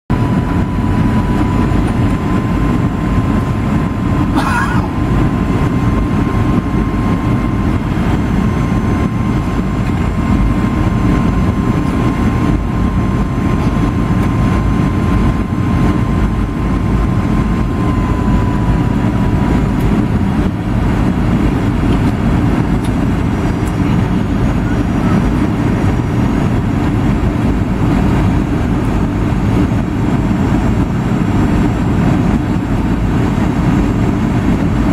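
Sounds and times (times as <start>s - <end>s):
airliner cabin engine roar: 0.1s - 34.9s.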